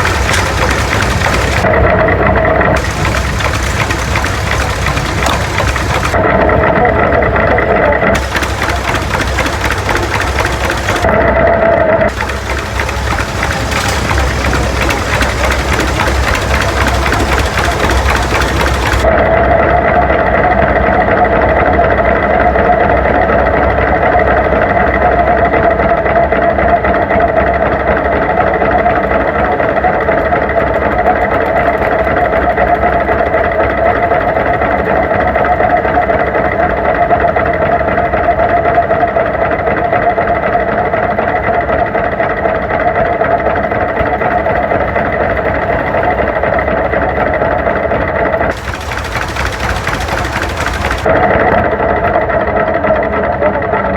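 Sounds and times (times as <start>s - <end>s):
tractor engine running: 0.0s - 1.7s, 2.8s - 6.2s, 8.2s - 11.1s, 12.1s - 19.1s, 48.5s - 51.1s.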